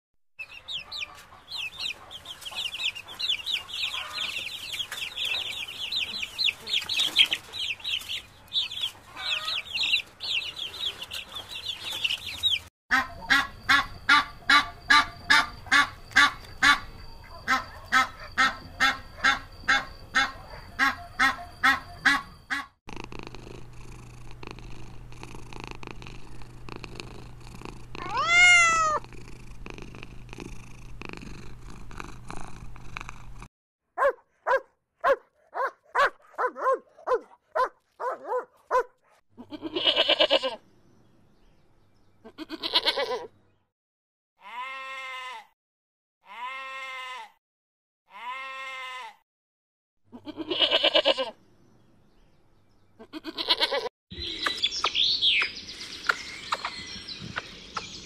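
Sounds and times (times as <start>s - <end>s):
chicks peeping shrilly: 0.4s - 22.7s
geese honking: 0.8s - 4.5s, 8.9s - 9.9s
kitten purring: 22.9s - 33.5s
kitten meowing: 28.0s - 29.0s.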